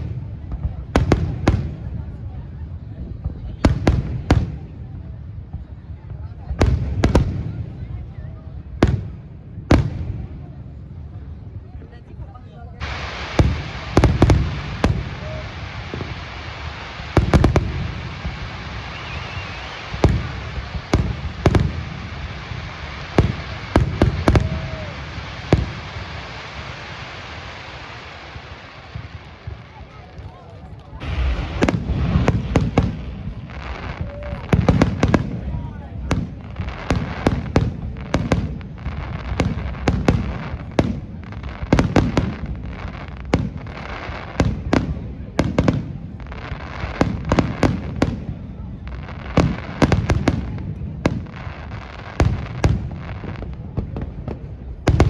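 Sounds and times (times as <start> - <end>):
continuous hiss: 8.3 - 55.0
fireworks bursting: 12.8 - 55.0.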